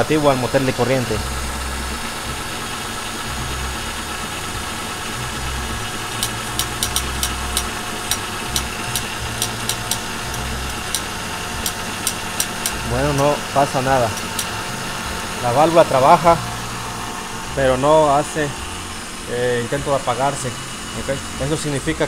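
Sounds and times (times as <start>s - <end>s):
car engine idling: 0.0s - 22.0s
sharp clicks: 6.2s - 12.8s, 14.1s - 14.6s.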